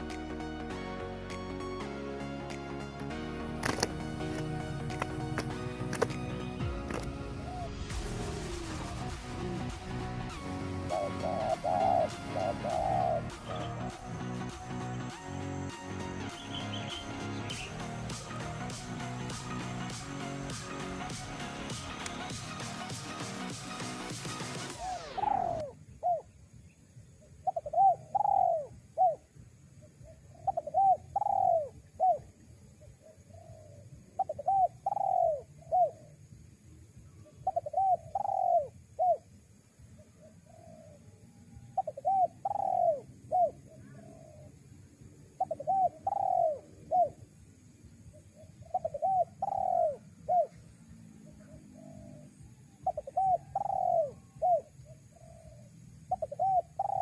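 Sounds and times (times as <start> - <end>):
dove cooing: 6.9 - 9.0, 10.8 - 14.2, 24.7 - 26.3, 27.4 - 29.3, 29.9 - 36.2, 37.2 - 39.3, 40.0 - 44.6, 45.2 - 47.3, 48.1 - 57.0.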